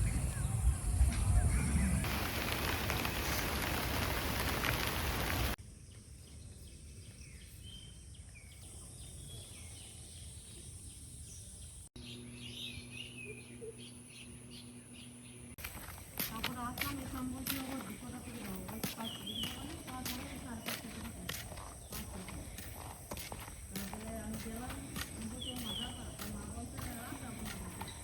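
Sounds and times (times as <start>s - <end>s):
birds chirping: 0.0s - 5.6s, 6.3s - 28.0s
rain hissing: 2.0s - 5.6s.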